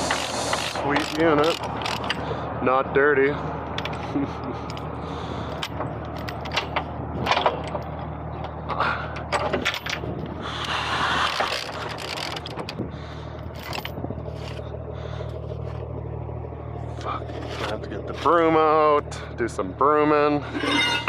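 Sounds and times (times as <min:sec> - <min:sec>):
truck engine idling: 0:00.0 - 0:21.0
metallic knocks and clanks: 0:05.6 - 0:10.1, 0:20.5 - 0:21.0
scraping rush: 0:20.4 - 0:21.0.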